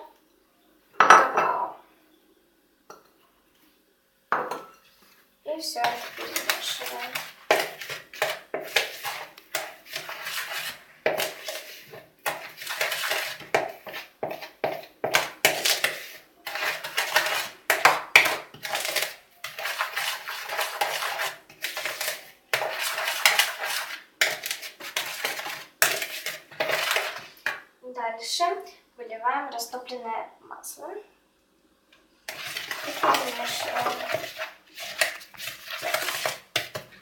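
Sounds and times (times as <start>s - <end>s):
utensil scraping a mixing bowl: 5.5s - 27.6s, 32.3s - 37.0s.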